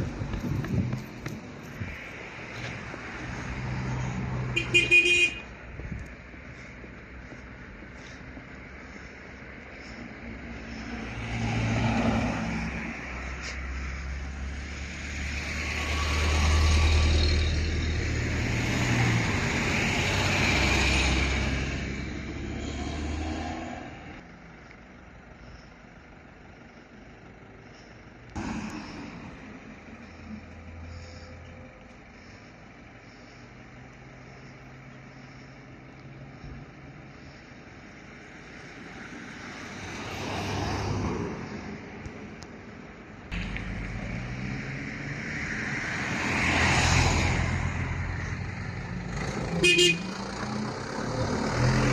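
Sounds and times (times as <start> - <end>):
bus diesel engine drone: 0.0 - 51.9
vehicle passing close by: 9.8 - 24.2, 38.4 - 42.0, 43.3 - 51.9.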